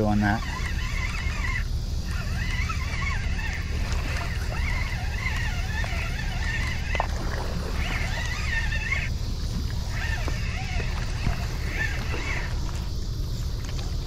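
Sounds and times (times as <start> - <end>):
birds calling and chattering: 0.0 - 14.0
steady low drone: 0.0 - 14.0.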